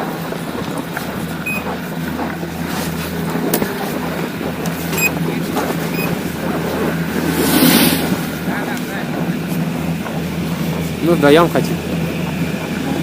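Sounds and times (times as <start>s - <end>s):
ski lift machinery humming: 0.0s - 13.0s
short high electronic beeps: 1.5s - 1.7s, 5.9s - 6.2s.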